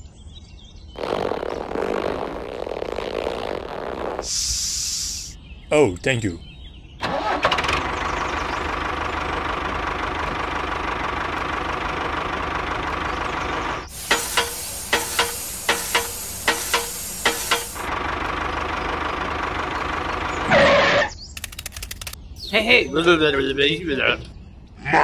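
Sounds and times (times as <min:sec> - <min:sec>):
loud hissing air: 0:03.8 - 0:05.4, 0:13.9 - 0:17.9
tractor engine idling: 0:07.0 - 0:22.2
sharp clicks: 0:21.2 - 0:22.2.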